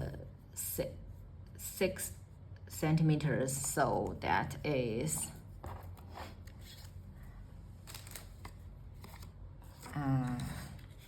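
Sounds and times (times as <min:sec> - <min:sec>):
paper rustling and tool clicks: 0:07.8 - 0:11.0.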